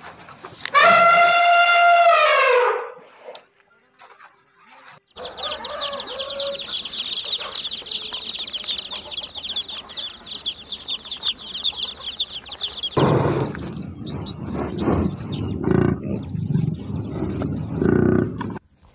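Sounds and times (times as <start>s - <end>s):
baby chicks peeping: 3.7s - 18.6s.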